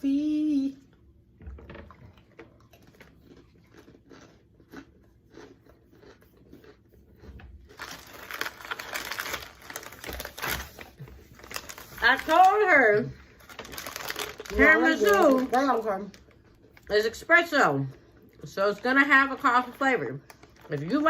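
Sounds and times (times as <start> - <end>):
cookie crunching and chewing: 1.8 - 17.2, 17.8 - 21.0
wrapper rustling crinkle: 7.7 - 16.9, 19.2 - 21.0.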